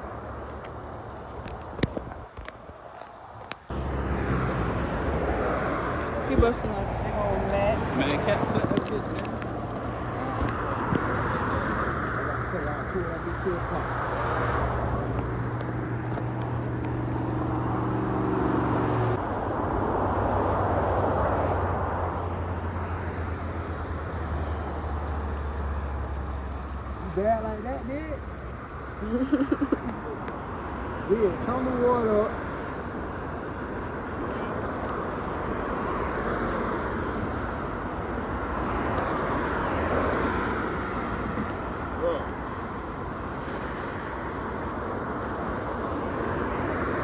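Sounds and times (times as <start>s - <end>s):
steady outdoor rushing noise: 0.0s - 47.0s
engine drone: 3.6s - 47.0s
rushing noise: 17.3s - 23.6s.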